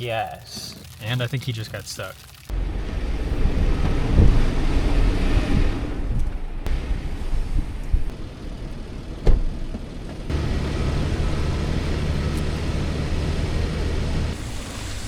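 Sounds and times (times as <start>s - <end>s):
car engine running: 2.5s - 15.0s
thump: 9.2s - 9.5s.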